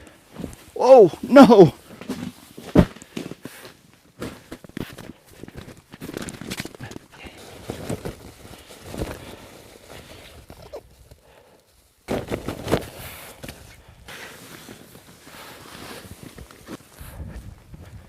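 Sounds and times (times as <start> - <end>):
footsteps crunching through snow: 14.1 - 17.6.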